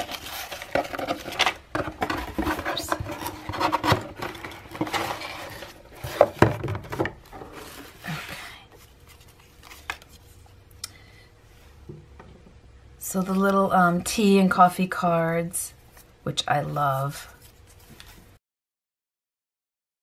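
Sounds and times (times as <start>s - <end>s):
cardboard box scraping and knocking: 0.0s - 8.0s
handling paper cards: 7.6s - 10.5s.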